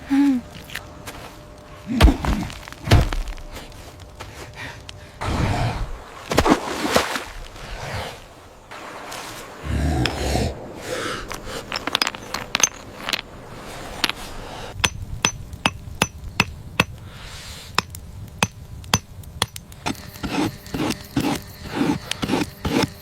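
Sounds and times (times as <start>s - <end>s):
scraping: 11.2s - 23.0s.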